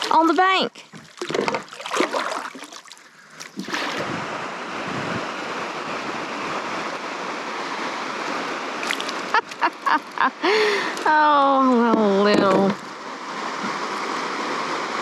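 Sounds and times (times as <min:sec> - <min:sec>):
steady rushing noise: 0:03.6 - 0:09.3.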